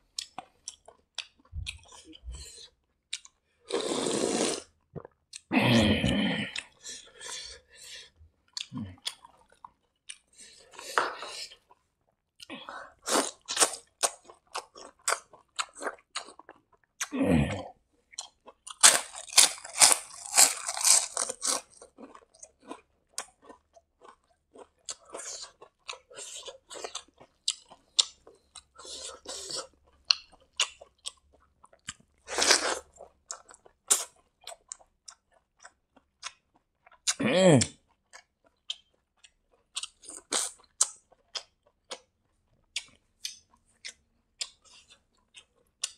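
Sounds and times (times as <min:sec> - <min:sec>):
crunchy bites: 0:18.2 - 0:24.2
wet chewing clicks: 0:33.3 - 0:45.9.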